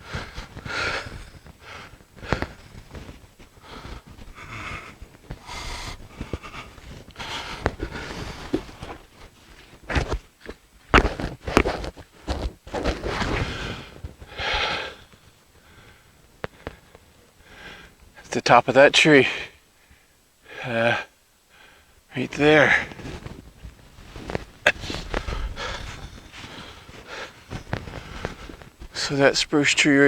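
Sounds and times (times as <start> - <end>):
heavy breathing: 0.0 - 9.0, 13.3 - 18.0, 24.0 - 29.1
footsteps crunching through snow: 22.9 - 29.0.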